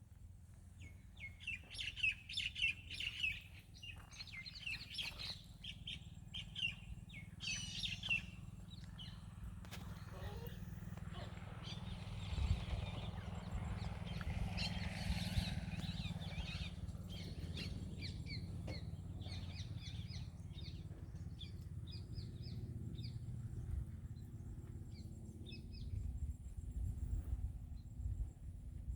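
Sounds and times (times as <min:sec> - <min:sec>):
birds chirping: 0:00.7 - 0:23.3.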